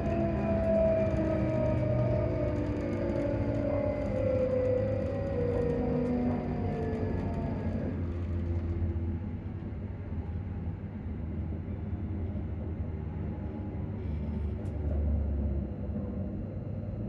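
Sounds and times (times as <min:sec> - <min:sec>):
train transformer humming: 0:00.0 - 0:12.0.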